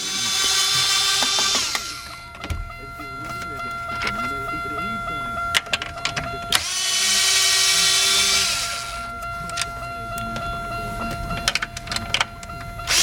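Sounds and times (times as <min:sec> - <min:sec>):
cordless drill motor running: 0:00.0 - 0:02.4, 0:05.8 - 0:09.2, 0:12.5 - 0:13.0.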